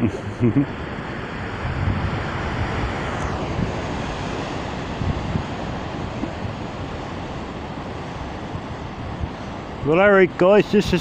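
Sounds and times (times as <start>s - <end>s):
wind buffeting microphone: 0.0s - 11.0s
surf breaking on rocks: 0.8s - 11.0s.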